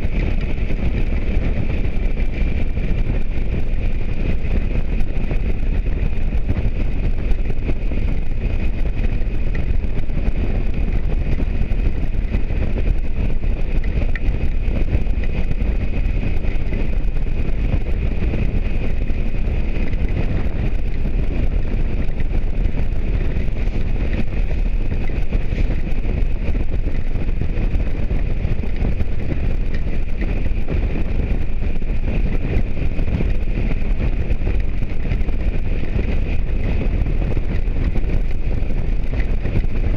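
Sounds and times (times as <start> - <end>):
motorcycle engine and road noise: 0.0 - 39.9
wind rush on microphone: 0.0 - 39.9.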